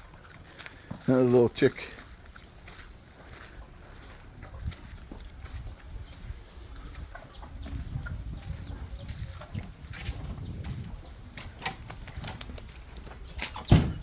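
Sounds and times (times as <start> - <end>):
chicks peeping: 3.2 - 14.0.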